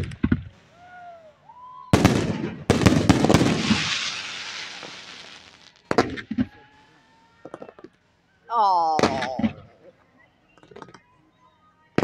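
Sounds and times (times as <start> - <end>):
firework crackling and rumble: 1.9 - 6.5
firework shells bursting: 2.0 - 6.4.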